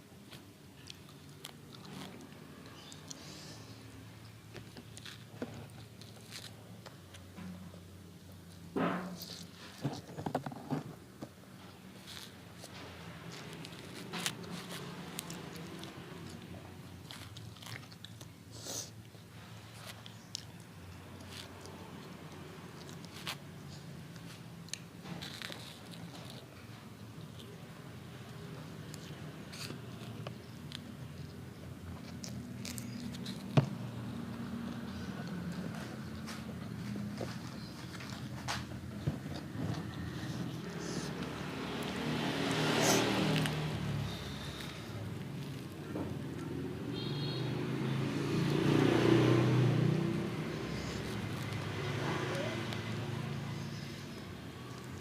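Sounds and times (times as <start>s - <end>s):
person chewing crispy food: 0.8s - 6.9s, 12.0s - 26.6s, 28.3s - 46.4s.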